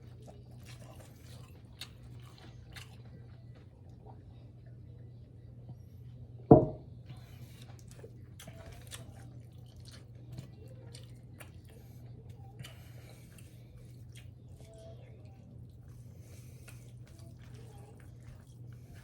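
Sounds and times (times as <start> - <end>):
person chewing: 0.2 - 3.8, 7.4 - 19.0
heavy thump: 6.5 - 6.8.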